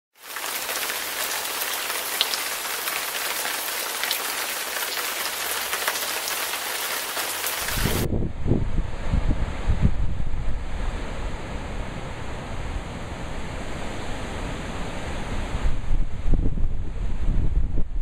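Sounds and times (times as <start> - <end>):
rain hissing on a surface: 0.2 - 8.1
raindrop ticks: 0.3 - 7.6.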